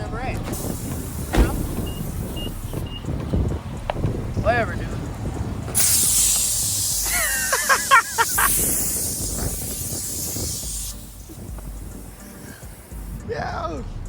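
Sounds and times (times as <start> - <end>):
loud hissing spray: 0.5 - 2.7, 5.0 - 13.3.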